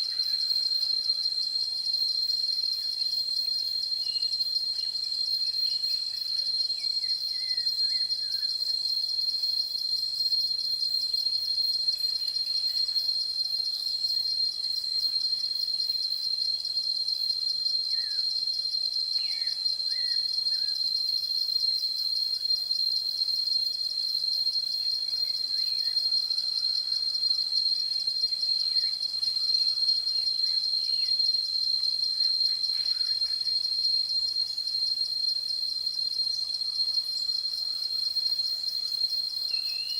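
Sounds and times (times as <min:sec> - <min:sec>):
pulsing insect trill: 0:17.2 - 0:39.9
faint bird chirps: 0:39.5 - 0:39.9.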